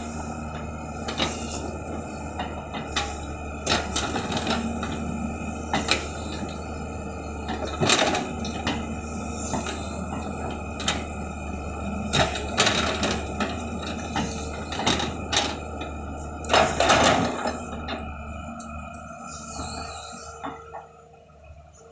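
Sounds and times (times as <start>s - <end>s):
earthmoving machine engine: 0.0s - 21.9s.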